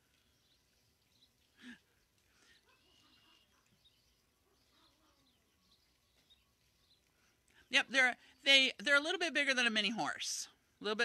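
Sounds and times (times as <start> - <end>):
faint bird chirps: 0.0 - 8.5.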